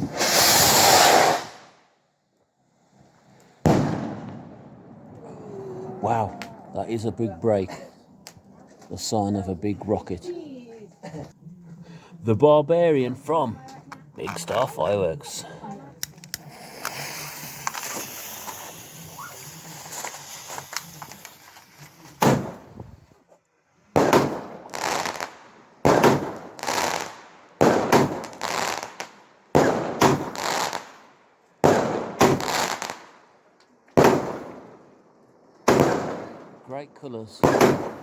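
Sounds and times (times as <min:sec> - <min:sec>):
loud echoing firework bangs: 0:00.0 - 0:01.7, 0:03.6 - 0:05.2, 0:22.2 - 0:22.8, 0:23.9 - 0:31.0, 0:31.6 - 0:33.2, 0:34.0 - 0:35.0, 0:35.6 - 0:36.7, 0:37.4 - 0:38.0
firework hissing and crackling: 0:00.0 - 0:01.9, 0:16.0 - 0:23.0, 0:24.0 - 0:33.2, 0:34.0 - 0:34.8, 0:37.4 - 0:38.0.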